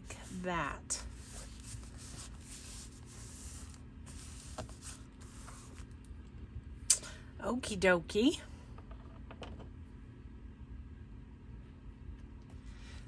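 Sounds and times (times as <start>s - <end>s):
paper rustling and rubbing: 0.0s - 6.0s.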